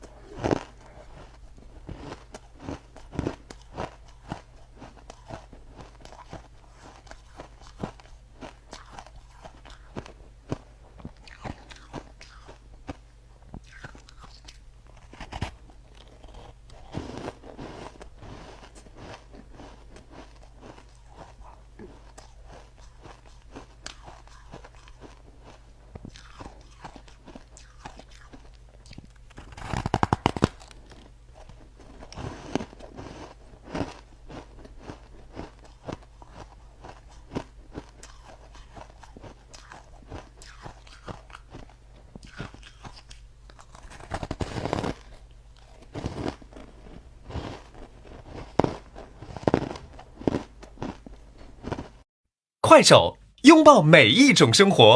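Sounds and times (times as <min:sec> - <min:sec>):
ice crunching between teeth: 0:00.0 - 0:13.0, 0:13.6 - 0:52.0.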